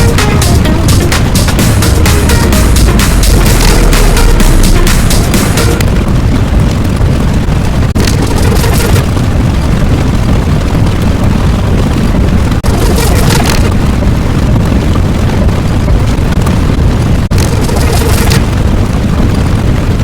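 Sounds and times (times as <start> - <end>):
loud low rumble: 0.0 - 12.8.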